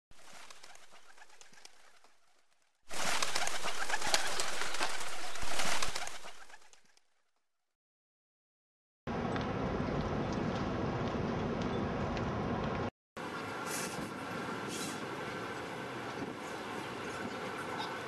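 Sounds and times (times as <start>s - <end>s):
bird sounds: 0.2s - 6.8s, 13.3s - 18.0s
outdoor background noise: 9.1s - 18.0s.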